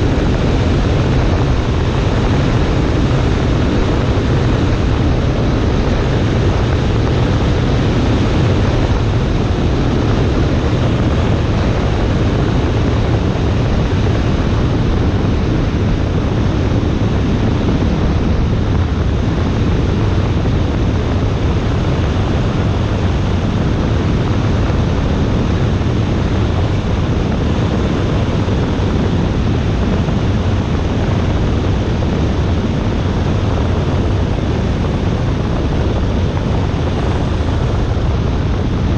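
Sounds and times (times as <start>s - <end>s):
airplane engine and propeller drone: 0.0s - 38.9s
wind noise on microphone: 0.0s - 38.9s.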